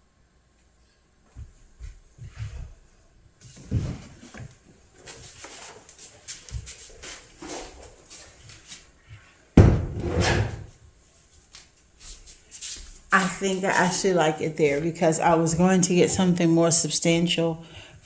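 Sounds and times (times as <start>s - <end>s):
light knocks and rustles: 1.2s - 10.8s
loud wooden bump: 9.6s - 10.7s.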